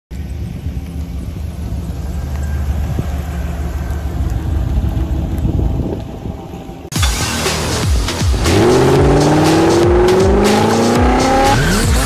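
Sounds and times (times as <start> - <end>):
truck engine rumbling: 0.1 - 12.0.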